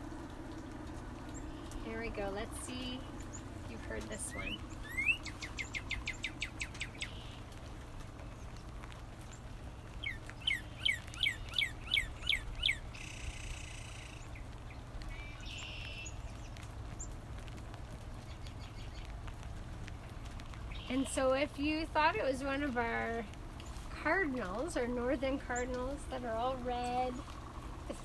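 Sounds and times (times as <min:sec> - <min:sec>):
bird whistling song: 0:01.3 - 0:07.5, 0:10.0 - 0:17.1, 0:20.7 - 0:21.6.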